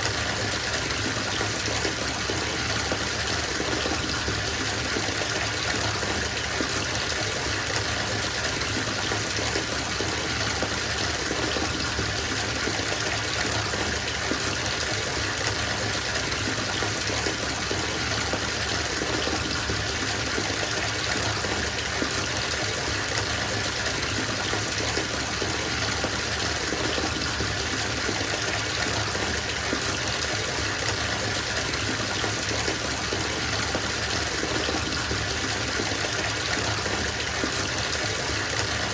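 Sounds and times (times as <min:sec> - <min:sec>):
water running into a bathtub: 0:00.0 - 0:38.9.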